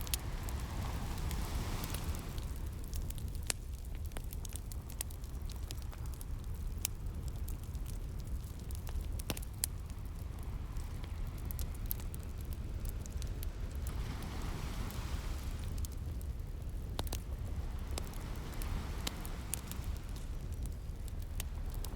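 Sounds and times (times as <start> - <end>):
wave washing in: 0.0 - 3.2, 12.4 - 16.3, 17.1 - 20.6
low rumble of surf: 0.0 - 21.9
wood fire crackling and popping: 0.0 - 21.9.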